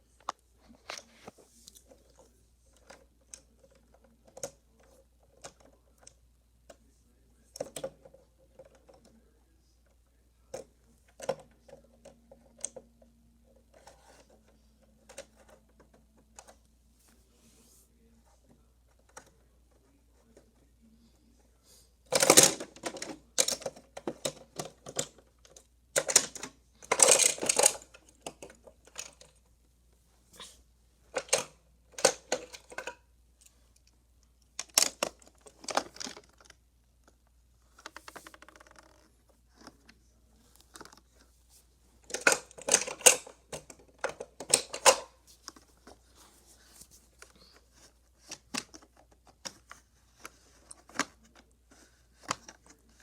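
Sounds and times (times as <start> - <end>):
toy cars clattering on plastic track: 22.1 - 29.3, 42.1 - 45.1.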